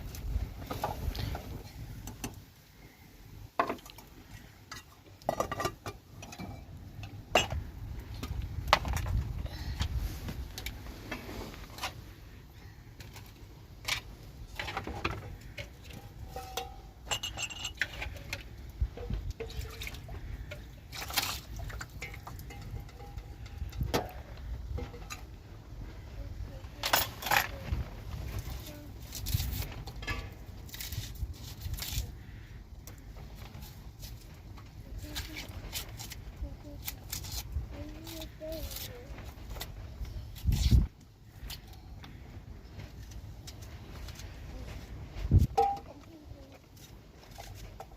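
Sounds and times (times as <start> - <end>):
objects knocking and clinking: 14.6 - 18.4.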